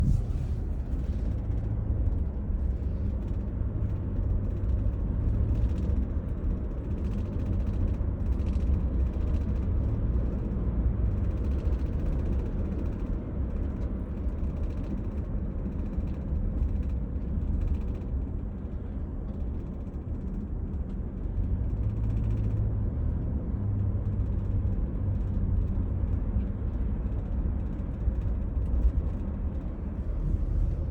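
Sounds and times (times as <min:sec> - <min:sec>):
seat rattling: 0:00.0 - 0:02.3
low road rumble: 0:00.0 - 0:30.9.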